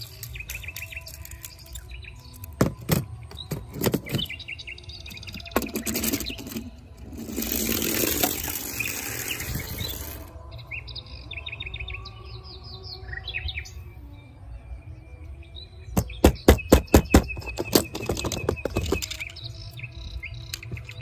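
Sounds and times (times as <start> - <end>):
birds chirping: 0.0 - 21.0
clattering clicks: 17.4 - 19.5.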